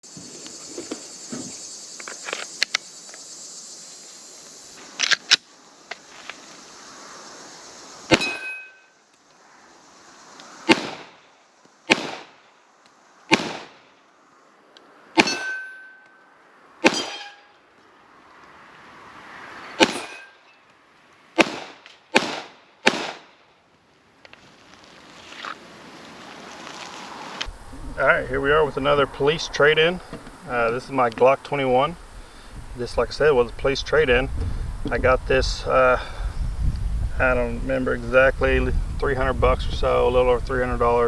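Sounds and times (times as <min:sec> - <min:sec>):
faint hiss: 0:00.0 - 0:08.2, 0:08.8 - 0:15.1, 0:23.6 - 0:41.0
pistol shots: 0:10.7 - 0:11.1, 0:11.9 - 0:12.3, 0:13.3 - 0:13.8, 0:21.4 - 0:23.3.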